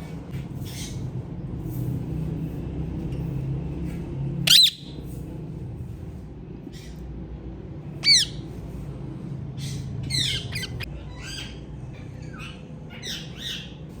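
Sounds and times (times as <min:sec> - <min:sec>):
parrots squawking: 0:04.4 - 0:05.0, 0:07.9 - 0:08.5, 0:09.6 - 0:14.0.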